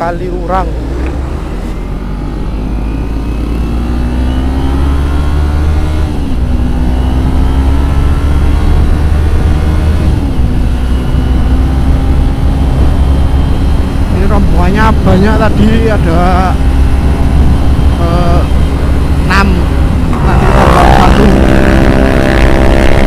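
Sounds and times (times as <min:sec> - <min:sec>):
motorcycle engine accelerating: 0:00.0 - 0:23.0
wind rumble on microphone: 0:05.6 - 0:23.0.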